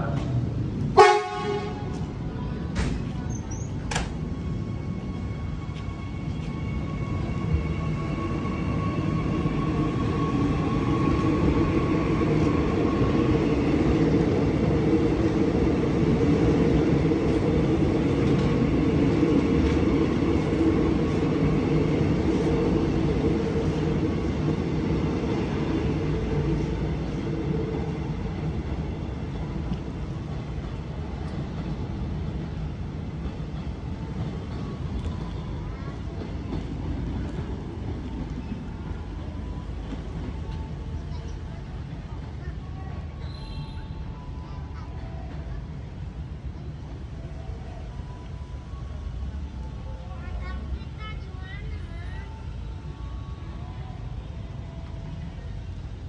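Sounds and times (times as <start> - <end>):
train wheels and motors rumbling: 0.0 - 56.0.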